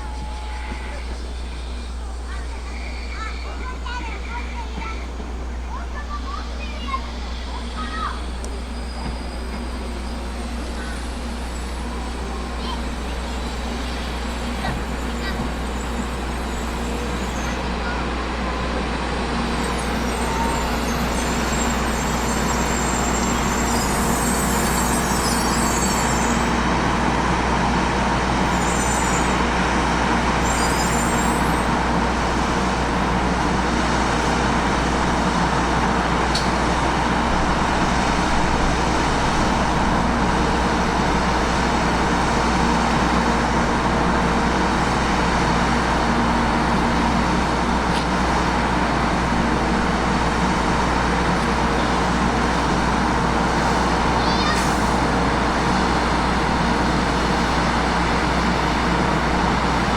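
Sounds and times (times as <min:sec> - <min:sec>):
vehicle rumble and hiss: 0:31.1 - 0:59.9.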